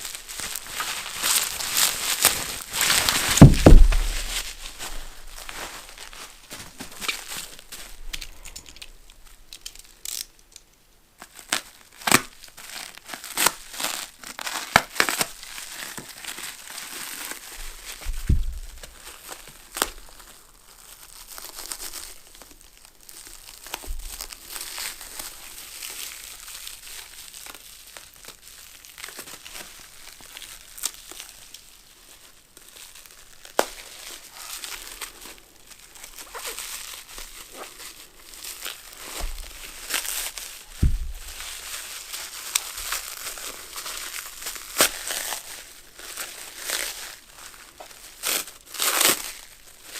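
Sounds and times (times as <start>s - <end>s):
packing material crinkling and tearing: 0.0s - 49.9s
louder knocks: 3.4s - 4.3s.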